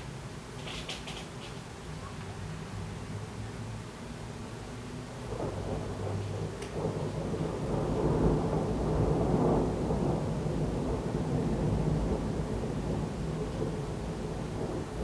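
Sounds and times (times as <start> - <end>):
thunder rumbling: 5.3 - 15.0.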